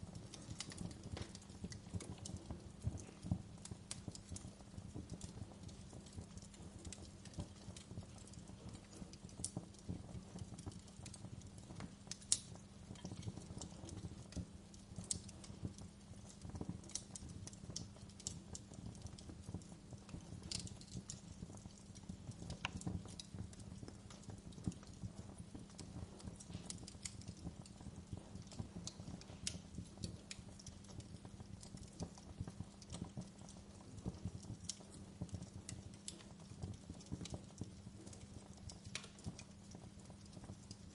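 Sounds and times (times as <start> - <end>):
fire flames rumbling: 0.0 - 40.9
wood fire crackling and popping: 0.0 - 40.9.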